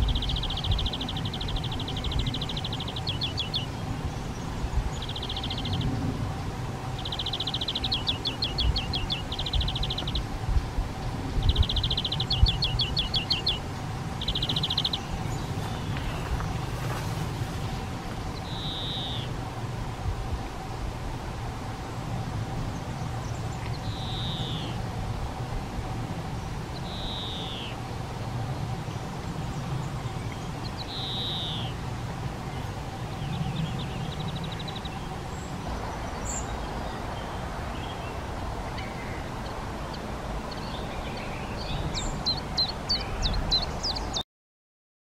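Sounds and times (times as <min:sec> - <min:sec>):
faint steady hum: 0:00.0 - 0:44.2
bird whistled call: 0:18.4 - 0:19.3, 0:23.8 - 0:24.8, 0:26.8 - 0:27.8, 0:30.8 - 0:31.7.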